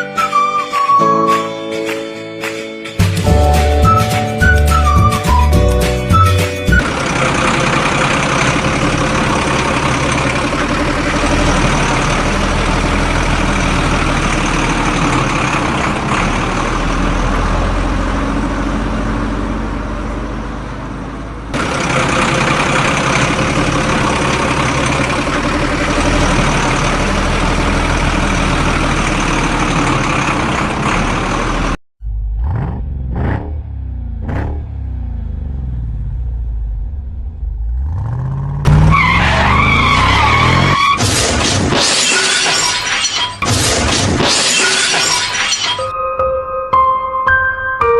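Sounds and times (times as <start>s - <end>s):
steady engine din: 3.2s - 41.9s
engine revving: 6.1s - 41.9s.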